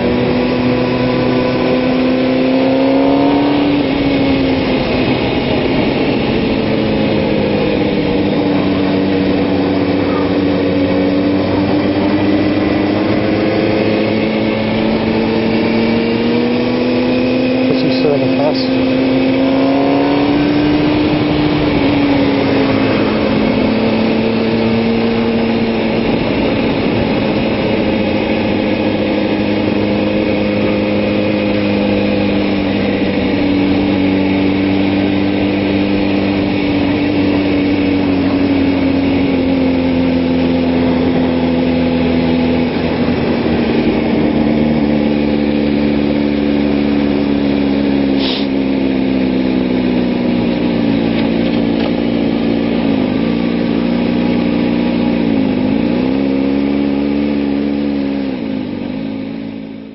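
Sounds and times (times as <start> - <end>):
motorcycle engine at high revs: 0.0 - 59.9
wind rushing: 18.9 - 28.9.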